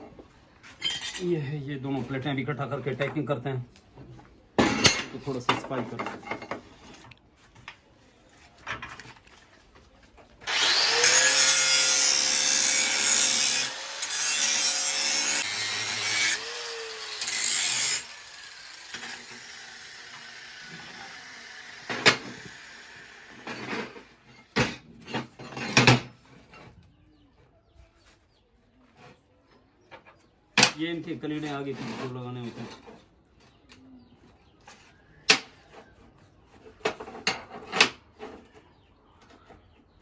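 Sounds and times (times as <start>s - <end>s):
angle grinder grinding steel: 10.4s - 24.2s.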